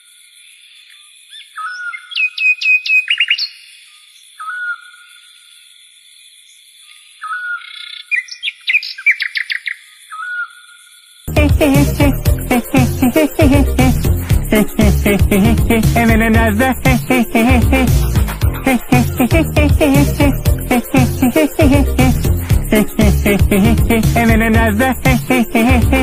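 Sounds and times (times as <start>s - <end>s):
sharp high bird chirps: 1.3s - 5.3s, 6.9s - 11.1s.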